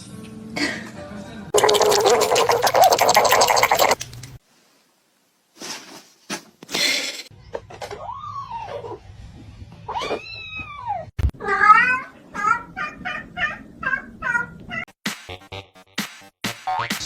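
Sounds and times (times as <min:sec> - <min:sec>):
cat meowing: 0:10.0 - 0:14.8.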